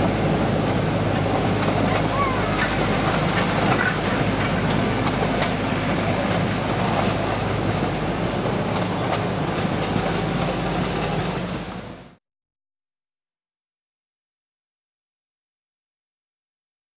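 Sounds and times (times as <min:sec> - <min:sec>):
train wheels clicking over rail joints: 0:00.0 - 0:12.0
diesel locomotive humming: 0:00.0 - 0:12.2.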